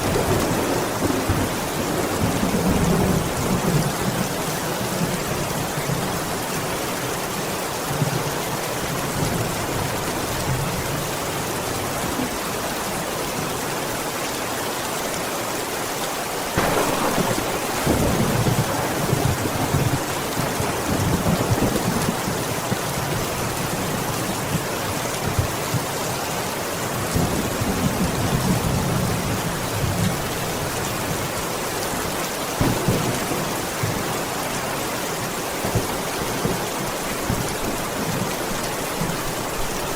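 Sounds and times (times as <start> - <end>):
rolling thunder: 0.0 - 6.2, 16.6 - 23.2, 32.6 - 34.7
steady rainfall: 0.0 - 39.9.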